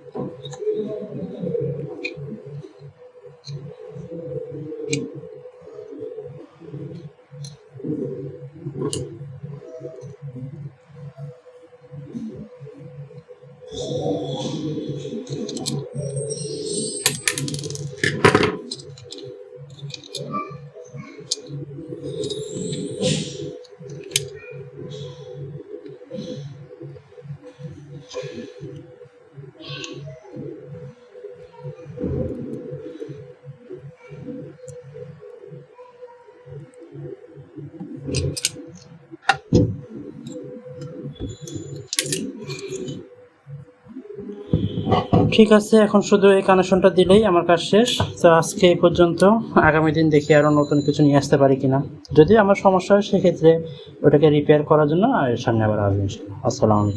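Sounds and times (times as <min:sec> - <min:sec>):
steady hum: 0:00.0 - 0:56.9
small parts clicking and clattering: 0:15.3 - 0:16.0, 0:17.0 - 0:20.3, 0:21.2 - 0:24.4, 0:38.1 - 0:38.6, 0:40.2 - 0:43.0.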